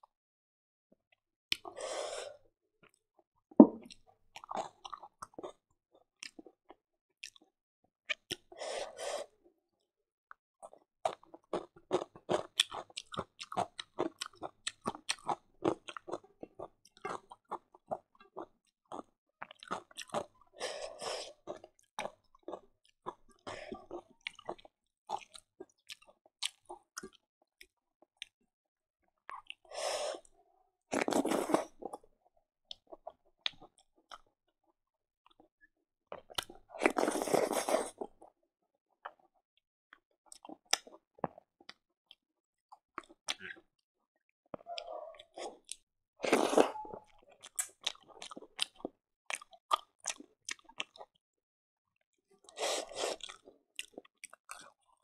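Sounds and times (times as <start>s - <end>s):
chewing and mouth smacks: 1.5s - 1.8s, 7.2s - 7.5s, 10.6s - 20.4s, 21.3s - 28.4s, 29.3s - 29.7s, 32.7s - 34.3s, 36.1s - 38.3s, 40.3s - 43.6s, 44.6s - 51.2s, 52.4s - 55.0s.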